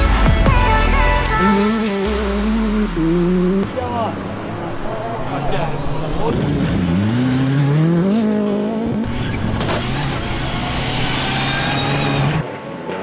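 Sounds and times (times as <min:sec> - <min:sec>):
rally car engine shifting gears: 0:02.1 - 0:12.4
tyre noise on gravel: 0:09.0 - 0:12.4.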